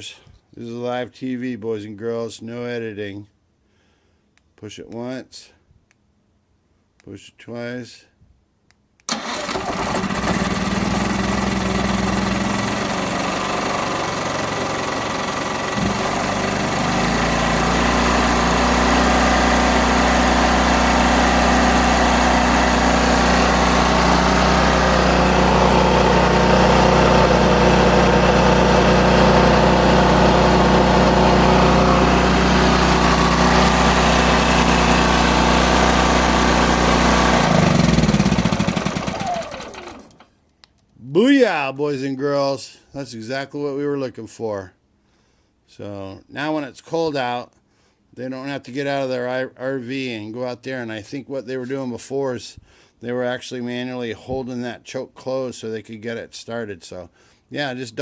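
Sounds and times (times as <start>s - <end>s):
generator engine running: 9.1s - 40.2s.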